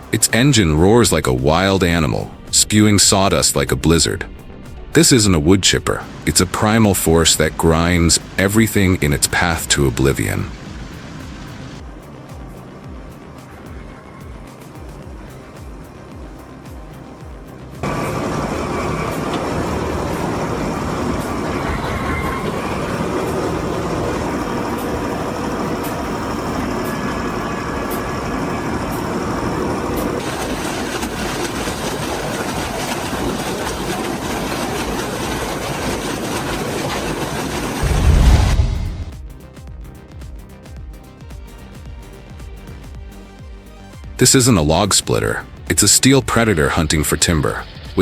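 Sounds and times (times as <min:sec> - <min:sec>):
heavy low thump: 0:02.2 - 0:06.3, 0:37.8 - 0:42.0
wood chipper chipping timber: 0:17.8 - 0:39.2.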